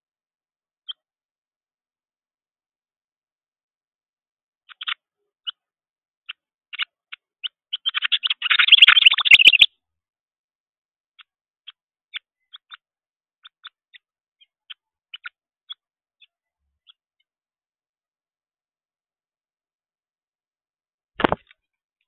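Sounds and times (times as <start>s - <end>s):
juvenile songbird begging chirps: 7.4s - 9.7s.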